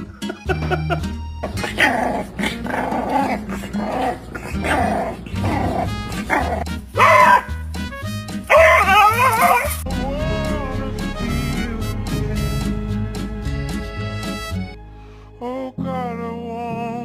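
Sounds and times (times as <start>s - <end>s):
background music: 0.0s - 17.0s
dog barking: 1.6s - 7.6s, 8.5s - 9.8s.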